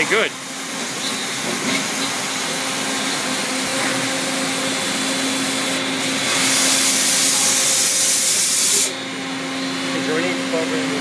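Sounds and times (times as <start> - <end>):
machine humming: 0.0 - 11.0
loud hiss: 4.9 - 9.0.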